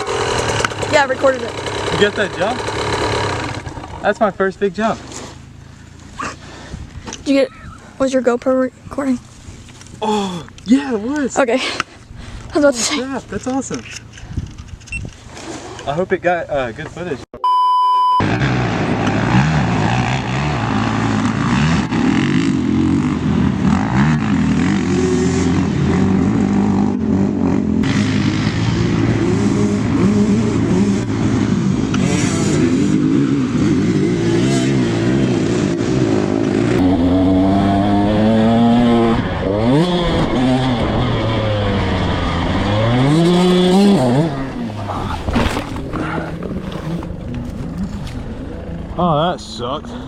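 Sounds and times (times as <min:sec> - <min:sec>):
dirt bike engine revving: 0:00.0 - 0:06.6, 0:18.2 - 0:49.0.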